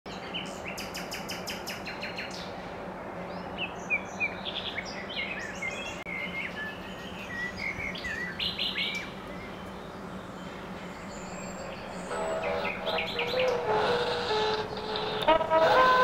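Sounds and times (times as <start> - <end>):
songbirds chirping: 0.1 - 16.0
steady low hum: 5.0 - 16.0.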